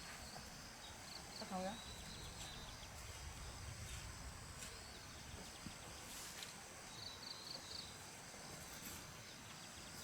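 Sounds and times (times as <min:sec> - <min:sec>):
bird chirping: 0:00.1 - 0:03.6, 0:06.8 - 0:10.0.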